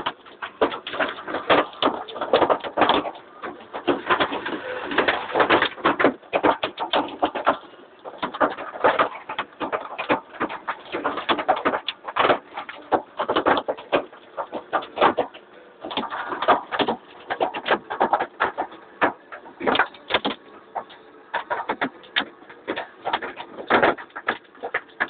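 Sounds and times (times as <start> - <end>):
hailstones striking hard surfaces: 0.0 - 25.0.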